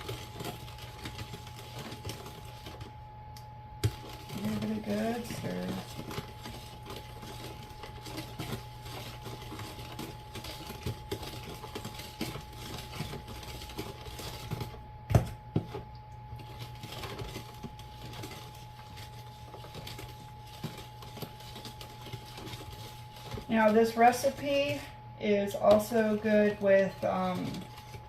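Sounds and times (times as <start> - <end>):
spoon stirring in a bowl: 3.8 - 14.7.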